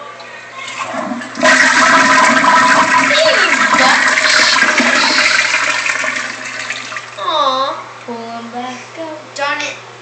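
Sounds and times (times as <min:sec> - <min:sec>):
toilet flushing: 0:00.6 - 0:07.2.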